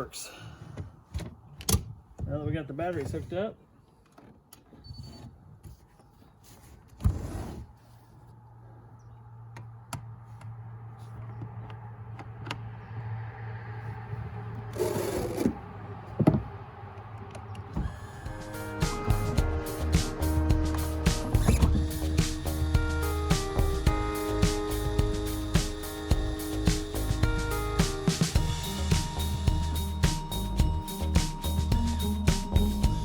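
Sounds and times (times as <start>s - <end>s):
electric motor humming: 17.7s - 33.0s.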